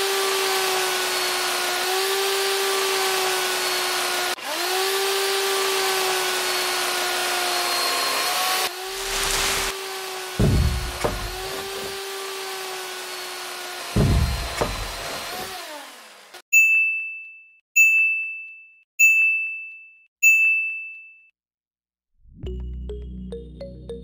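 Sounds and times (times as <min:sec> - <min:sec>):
small motor whirring: 0:00.0 - 0:16.4
low thumps: 0:10.4 - 0:11.9, 0:14.0 - 0:15.2.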